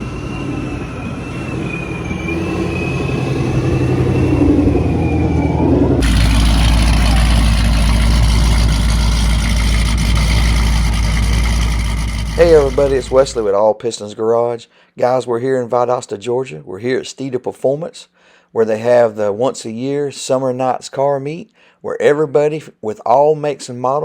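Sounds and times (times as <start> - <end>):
car engine rising in pitch: 0.0 - 13.5
deep rough engine rumble: 0.0 - 13.5.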